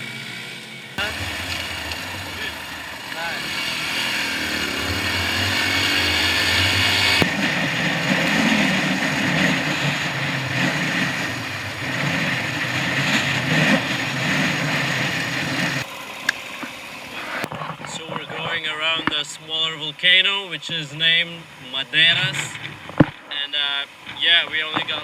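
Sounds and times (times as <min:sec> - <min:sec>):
small motorcycle engine running: 0:00.0 - 0:19.0.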